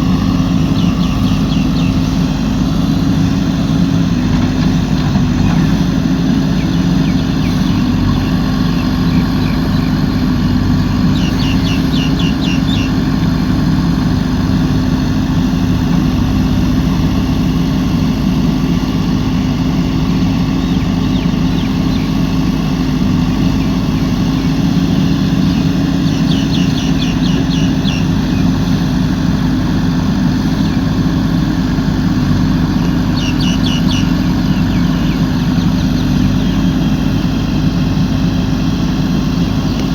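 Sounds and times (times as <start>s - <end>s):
diesel engine running: 0.0s - 39.9s
rapid bird trills: 0.1s - 13.4s, 19.5s - 38.1s.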